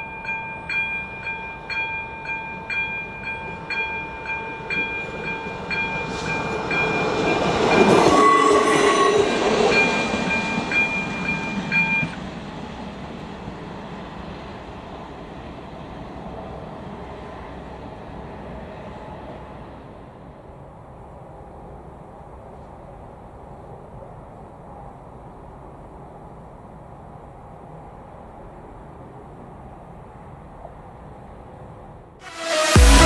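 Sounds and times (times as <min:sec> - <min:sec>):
level crossing bell: 0:00.0 - 0:07.9, 0:09.7 - 0:12.2
diesel railcar passing: 0:00.0 - 0:33.0.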